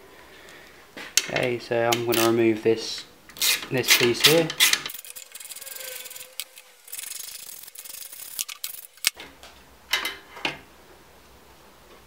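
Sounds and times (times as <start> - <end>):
ratchet spanner clicking: 3.3 - 9.2
metal rubbing: 4.6 - 9.2.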